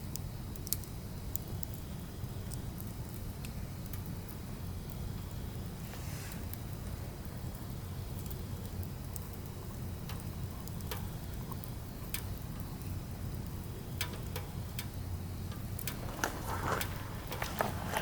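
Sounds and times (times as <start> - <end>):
fire low rumble: 0.0 - 18.0
firewood crackling and popping: 0.0 - 18.0.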